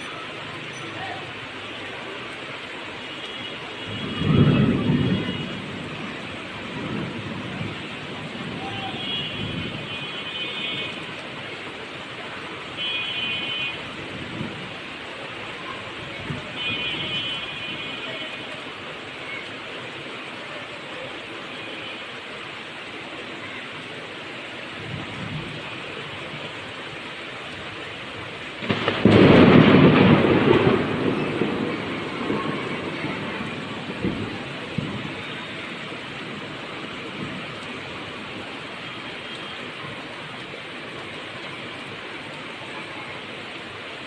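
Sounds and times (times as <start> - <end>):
rain falling: 0.0 - 44.0
thunder rumbling: 3.8 - 10.1, 27.4 - 41.0.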